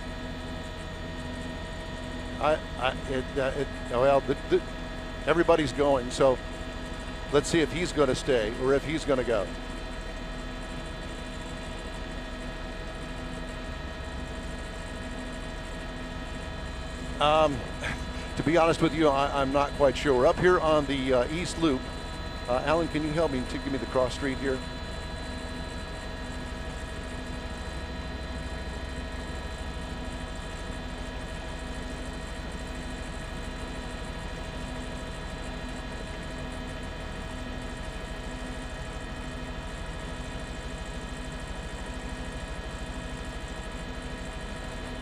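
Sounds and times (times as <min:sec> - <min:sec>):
constant tonal whine: 0:00.0 - 0:45.0
helicopter engine and rotors droning: 0:00.0 - 0:45.0.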